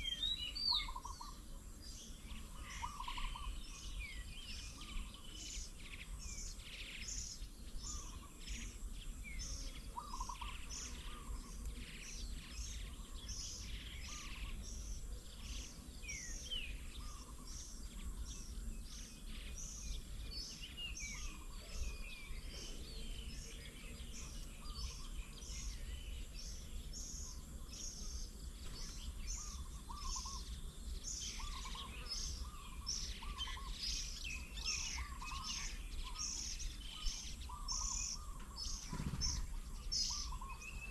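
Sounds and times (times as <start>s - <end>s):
birds chirping: 0.0s - 40.9s
lower bird calls: 0.0s - 40.9s.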